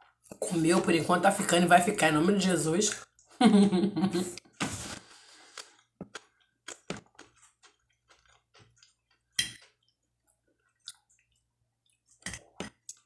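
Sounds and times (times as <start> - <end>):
person chewing food: 4.3 - 13.0.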